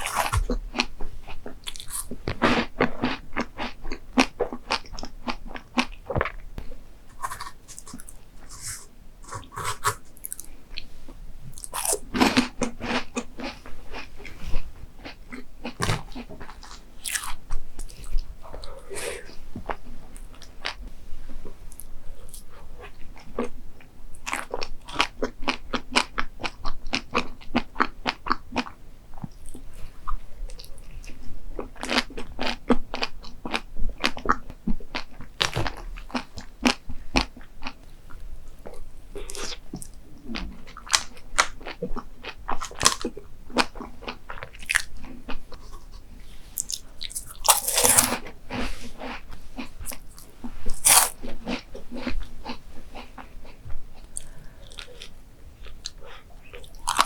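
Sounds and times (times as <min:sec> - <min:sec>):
person chewing crunchy food: 0:00.0 - 0:10.9, 0:11.5 - 0:20.8, 0:24.2 - 0:29.7, 0:39.2 - 0:57.0.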